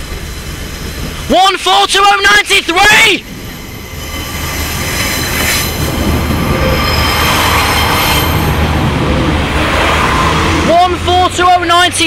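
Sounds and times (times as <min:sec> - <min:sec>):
low engine rumble: 0:00.0 - 0:12.0
train wheels squealing: 0:00.3 - 0:09.3.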